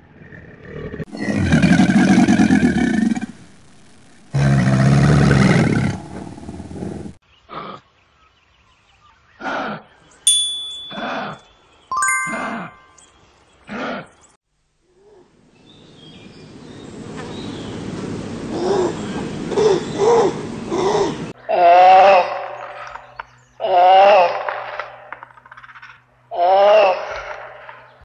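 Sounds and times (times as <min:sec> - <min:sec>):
bell-like chime: 0:10.3 - 0:13.0.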